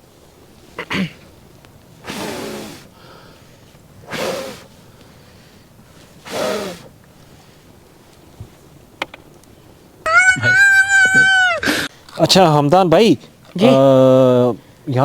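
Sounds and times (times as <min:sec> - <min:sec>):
person blowing on fire: 0:02.0 - 0:03.2, 0:04.0 - 0:04.8, 0:06.1 - 0:07.0.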